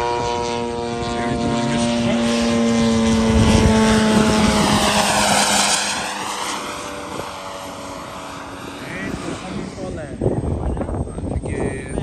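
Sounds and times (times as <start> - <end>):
model aircraft flying past: 0.0 - 12.0.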